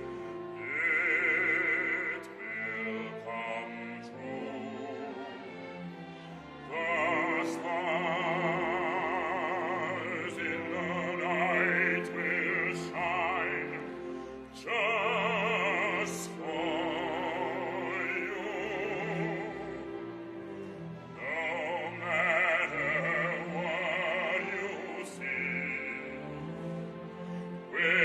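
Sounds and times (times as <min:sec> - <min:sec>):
operatic singing: 0:00.0 - 0:28.0.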